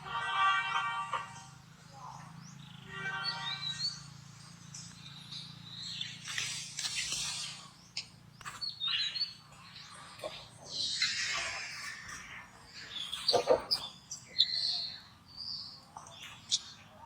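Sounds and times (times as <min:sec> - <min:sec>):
monkeys screeching: 0:10.2 - 0:14.9.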